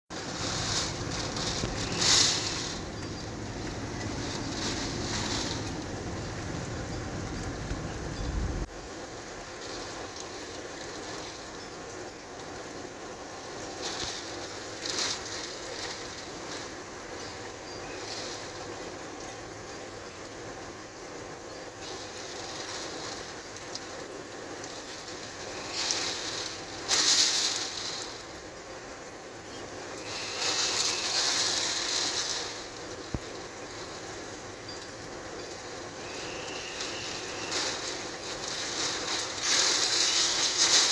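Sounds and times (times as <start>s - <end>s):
wind and heavy rain: 0.1s - 40.9s
deep thunder rumble: 0.5s - 8.7s.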